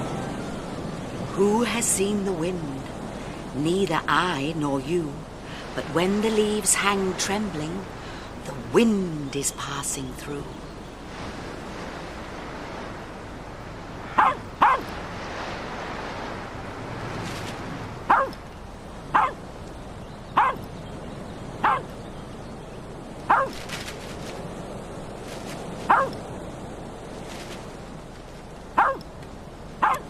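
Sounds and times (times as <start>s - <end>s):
dog barking: 14.1s - 14.9s, 18.1s - 18.4s, 19.2s - 19.4s, 20.4s - 20.6s, 21.6s - 21.9s, 23.3s - 23.6s, 25.9s - 26.2s, 28.8s - 29.0s.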